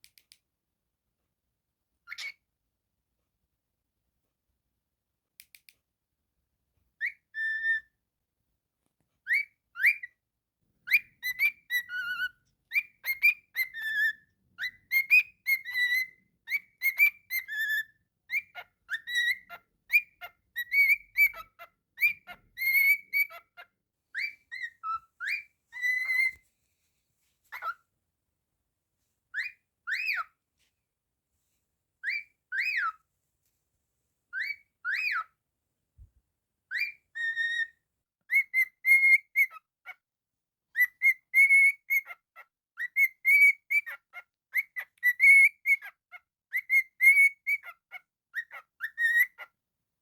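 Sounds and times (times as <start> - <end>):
cockatiel whistling: 2.1 - 2.4, 7.0 - 7.9, 9.3 - 10.1, 10.9 - 26.4, 27.5 - 27.8, 29.3 - 30.3, 32.0 - 33.0, 34.3 - 35.3, 36.7 - 37.7, 38.3 - 39.7, 40.8 - 42.2, 42.8 - 49.5.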